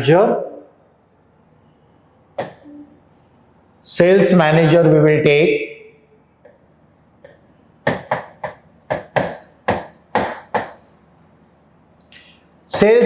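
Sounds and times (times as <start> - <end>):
chalk tapping and scratching on board: 2.4 - 2.6, 4.2 - 4.4, 6.5 - 11.9, 12.7 - 13.0.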